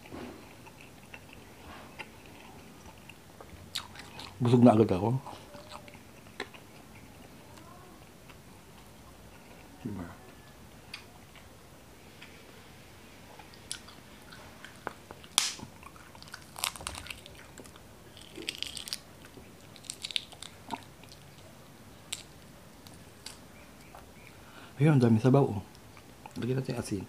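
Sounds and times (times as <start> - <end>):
eggshell cracking: 15.3 - 20.9.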